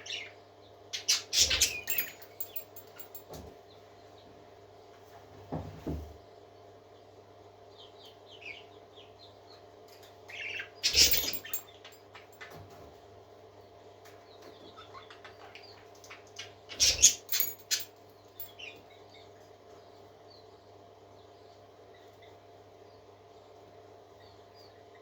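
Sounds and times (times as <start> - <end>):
parakeets chirping: 0.0 - 0.4, 1.0 - 3.1, 10.3 - 11.8, 14.7 - 17.8.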